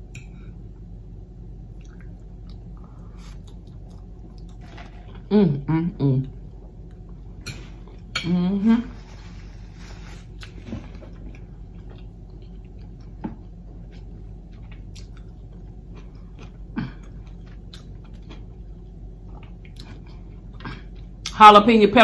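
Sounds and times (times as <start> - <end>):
person wet chewing: 1.7 - 5.3, 11.2 - 21.3.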